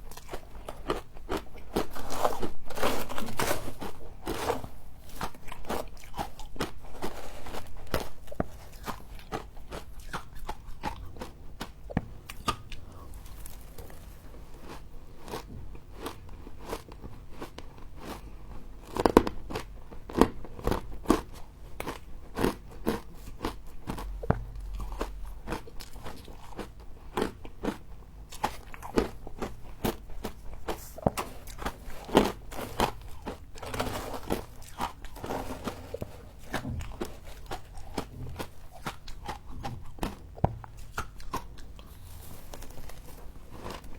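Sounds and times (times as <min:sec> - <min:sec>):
person chewing ice crunches: 0:00.0 - 0:43.9.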